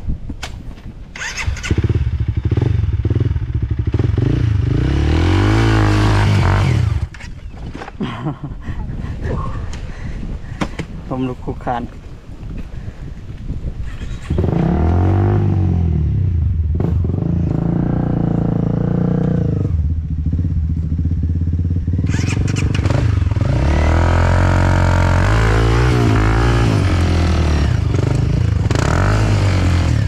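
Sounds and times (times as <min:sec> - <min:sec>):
dirt bike engine revving: 0:01.2 - 0:07.3, 0:14.0 - 0:30.0.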